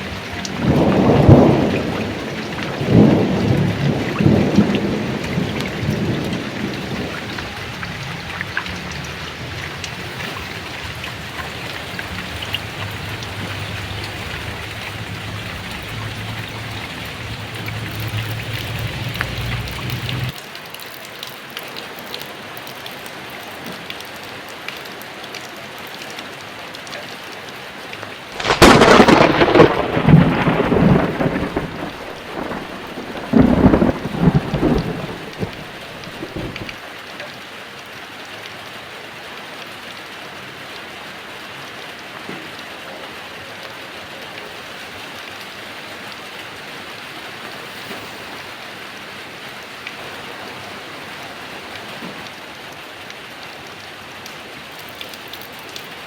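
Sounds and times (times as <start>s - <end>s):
thunder rumbling: 0.0s - 20.3s, 28.4s - 36.8s
heavy rain falling: 0.0s - 56.0s
loud thunderclap: 0.4s - 20.3s, 28.4s - 36.8s.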